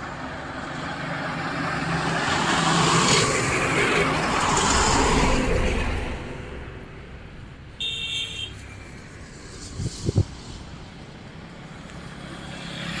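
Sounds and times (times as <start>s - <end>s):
highway traffic noise: 0.0s - 13.0s
high-pitched vehicle horn toot: 7.8s - 8.6s.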